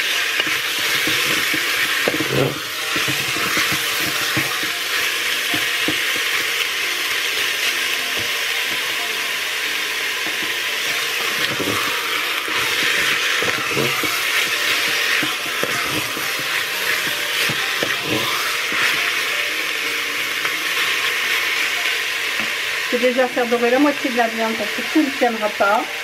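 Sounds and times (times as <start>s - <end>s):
meat and onions sizzling: 0.0s - 26.0s
wooden spatula scraping and knocking: 0.4s - 4.8s, 10.4s - 19.1s.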